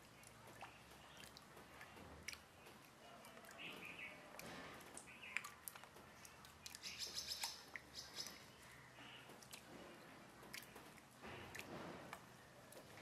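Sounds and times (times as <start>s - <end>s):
faint bird chirps: 6.8s - 9.3s.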